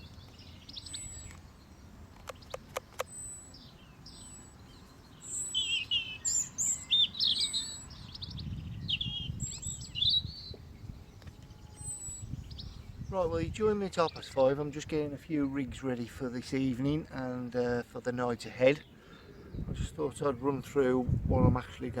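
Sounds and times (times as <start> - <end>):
songbird singing: 0.0 - 22.0
sharp clicks: 2.1 - 3.2.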